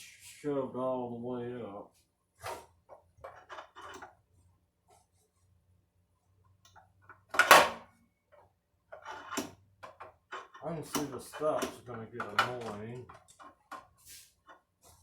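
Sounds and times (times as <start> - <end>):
clicks and knocks of parts handled: 6.7 - 14.7.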